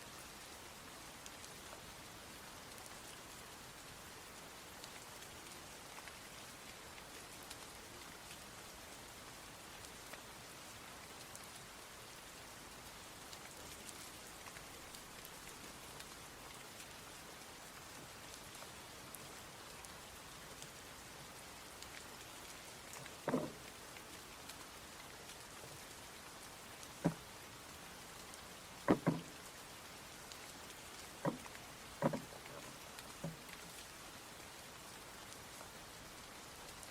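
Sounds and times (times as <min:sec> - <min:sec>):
steady rain falling: 0:00.0 - 0:36.9
dull knocks: 0:23.3 - 0:23.6, 0:28.9 - 0:29.3, 0:31.2 - 0:31.4, 0:32.0 - 0:32.6.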